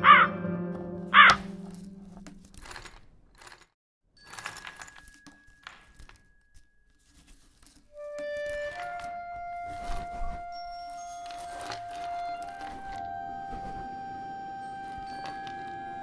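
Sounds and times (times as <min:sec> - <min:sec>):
light metallic clicks and clinks: 0:01.6 - 0:08.0.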